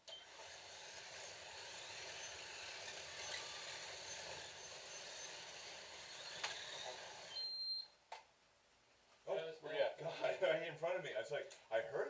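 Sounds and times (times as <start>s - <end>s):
slot car motors whirring: 0.1s - 7.4s.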